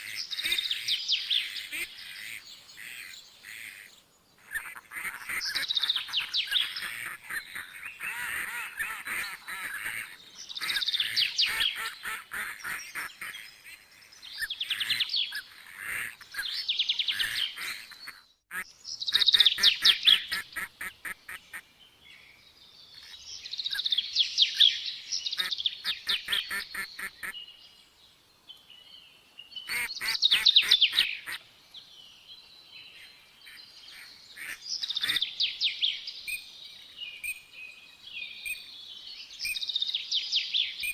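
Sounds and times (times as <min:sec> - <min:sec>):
birds chattering calls: 0:00.0 - 0:22.3, 0:22.9 - 0:27.6, 0:29.6 - 0:31.5, 0:32.8 - 0:36.4.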